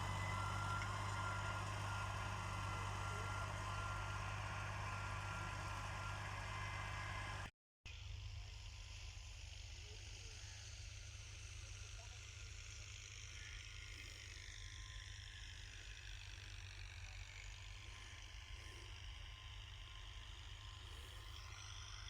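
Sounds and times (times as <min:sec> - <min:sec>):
tractor engine running: 0:00.0 - 0:07.5.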